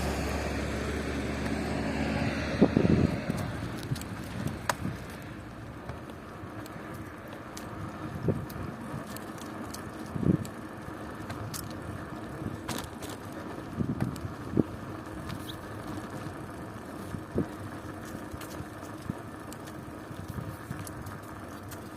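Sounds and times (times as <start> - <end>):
bicycle tyres rolling: 0.0 - 21.9
bicycle knocks and rattles: 2.7 - 21.9.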